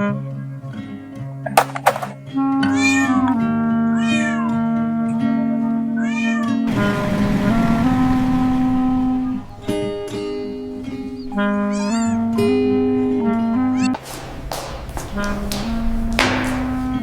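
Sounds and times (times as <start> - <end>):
cat meowing: 2.6 - 4.6, 5.9 - 6.7, 11.3 - 12.4.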